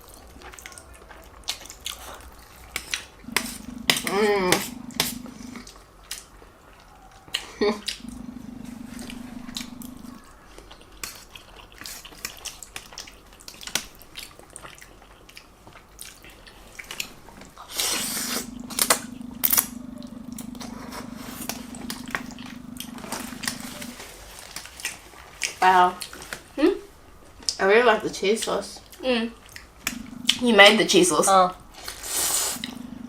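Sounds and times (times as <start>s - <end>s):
wet chewing and slurping: 0.0s - 26.5s, 28.8s - 33.0s
steady low hum: 2.0s - 7.1s, 7.8s - 10.6s, 16.4s - 24.5s, 29.3s - 33.0s.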